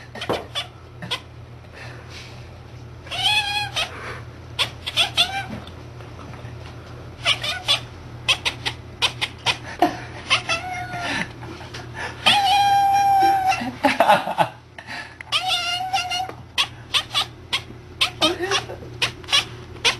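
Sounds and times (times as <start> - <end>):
cat yelping: 3.0 - 4.0, 4.6 - 5.6, 7.2 - 9.6, 10.2 - 11.1, 12.2 - 13.8, 15.3 - 19.9.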